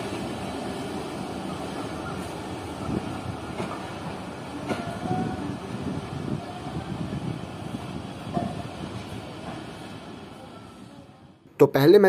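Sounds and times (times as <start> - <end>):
train wheels clicking over rail joints: 2.9 - 5.2.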